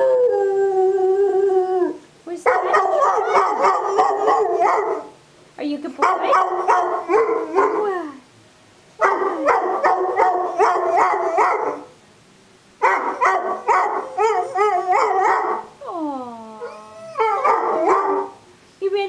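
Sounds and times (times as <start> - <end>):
dog howl-barking: 2.5 - 5.2, 6.1 - 7.9, 9.0 - 11.9, 12.8 - 15.7, 16.6 - 18.4.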